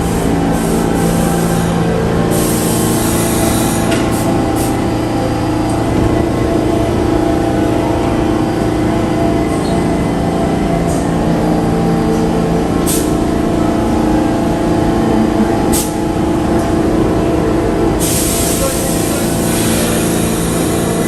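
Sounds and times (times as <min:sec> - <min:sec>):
loud air brake hiss: 0:00.0 - 0:04.9, 0:12.8 - 0:13.3, 0:15.7 - 0:16.0, 0:18.0 - 0:21.0
subway train motors humming: 0:00.0 - 0:21.0.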